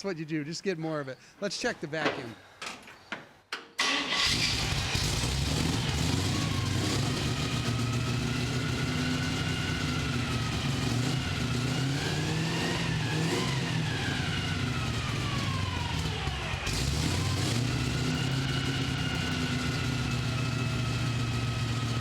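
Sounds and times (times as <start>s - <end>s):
v-eight engine idling: 13.7s - 22.0s.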